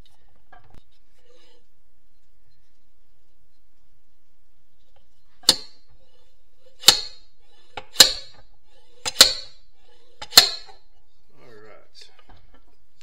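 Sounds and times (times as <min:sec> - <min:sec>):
slide hammer metallic clank: 0:05.4 - 0:05.8, 0:06.8 - 0:08.4, 0:09.0 - 0:09.6, 0:10.2 - 0:10.8.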